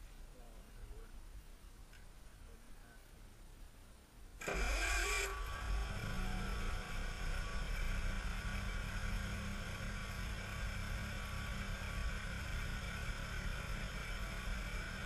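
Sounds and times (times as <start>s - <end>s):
engine idling: 4.4s - 15.0s.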